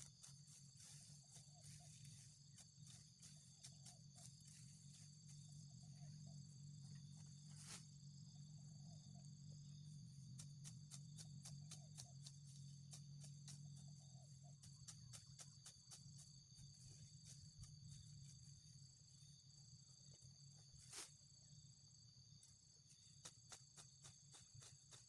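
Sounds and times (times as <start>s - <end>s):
sickle cutting grass: 0.0s - 5.3s, 7.5s - 7.8s, 20.8s - 21.2s
insect chirring: 0.0s - 25.0s.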